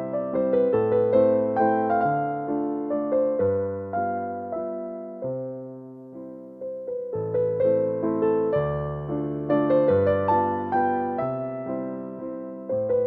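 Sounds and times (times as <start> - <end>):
slow gentle electric piano: 0.0 - 13.0.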